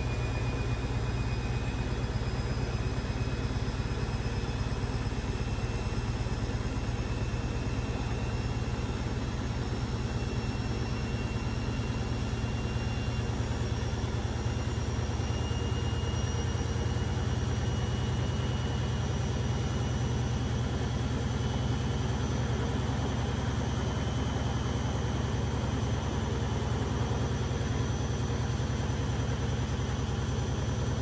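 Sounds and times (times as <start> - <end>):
high motor whine: 0.0 - 31.0
washing machine drum drone: 0.0 - 31.0.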